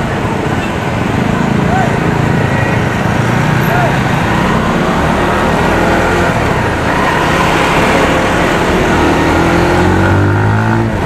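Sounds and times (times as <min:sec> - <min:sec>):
surrounding traffic: 0:00.0 - 0:11.0.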